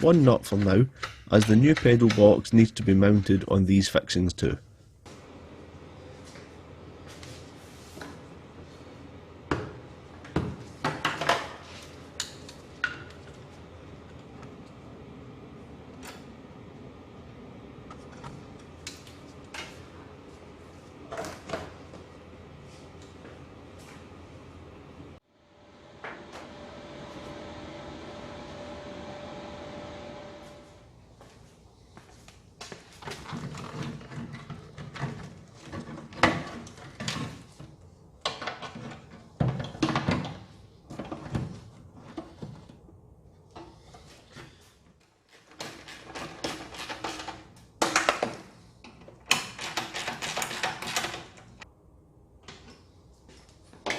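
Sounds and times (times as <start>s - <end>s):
metal parts clunking and rattling: 45.4s - 51.6s.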